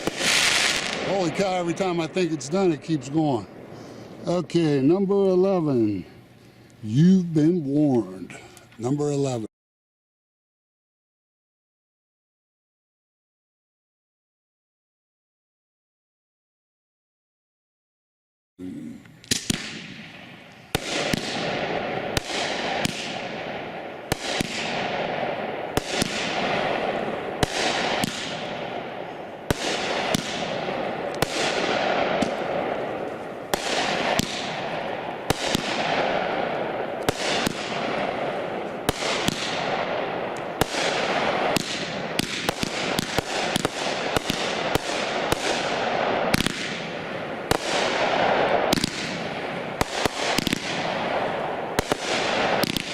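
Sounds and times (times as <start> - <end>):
fireworks shots with hiss: 0.0 - 6.0, 19.2 - 52.9.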